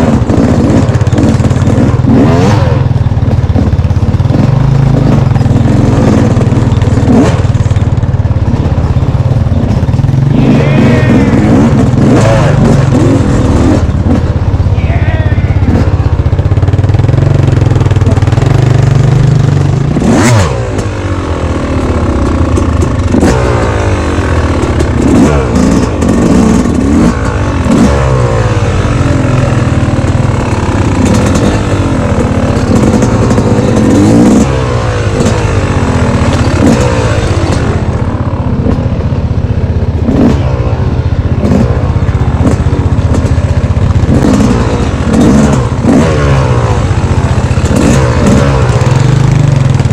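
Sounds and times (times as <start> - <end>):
dirt bike engine revving: 0.0 - 49.9
bike rattling over rough ground: 41.4 - 46.0.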